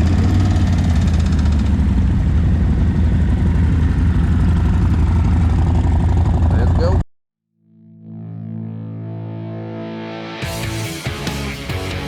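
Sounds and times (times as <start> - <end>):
motorcycle engine idling: 0.0 - 7.0.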